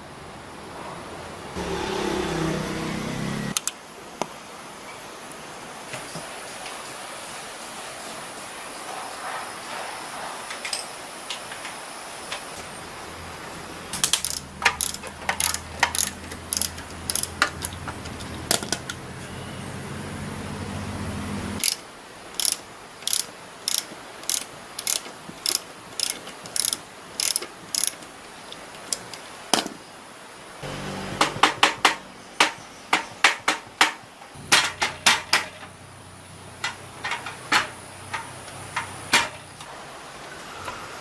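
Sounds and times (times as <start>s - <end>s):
hand tools clicking on metal: 14.0s - 19.0s, 21.6s - 29.8s.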